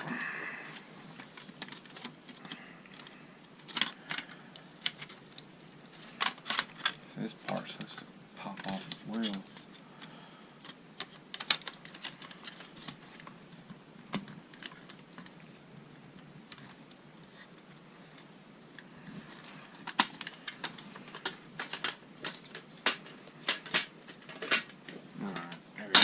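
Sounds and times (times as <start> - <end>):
plastic parts clicking and tapping: 1.2 - 15.4, 18.8 - 26.0.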